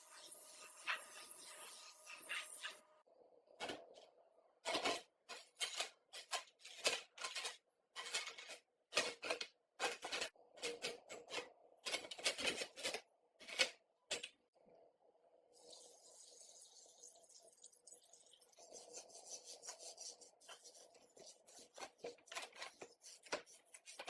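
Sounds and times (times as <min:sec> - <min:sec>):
hand tool scraping: 0:18.7 - 0:24.0.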